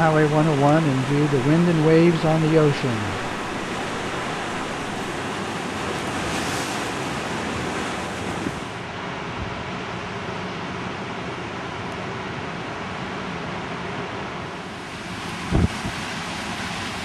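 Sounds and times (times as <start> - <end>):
wind buffeting microphone: 0.0 - 6.3, 15.4 - 16.1
strong wind: 0.0 - 10.0, 13.6 - 17.0
heavy surf: 0.0 - 17.0.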